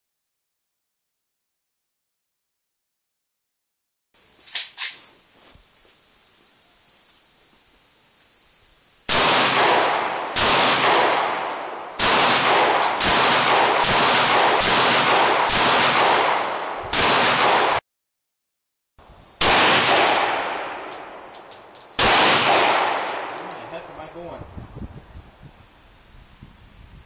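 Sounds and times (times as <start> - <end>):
pistol shots: 9.1 - 17.8, 19.4 - 21.3, 22.0 - 23.9.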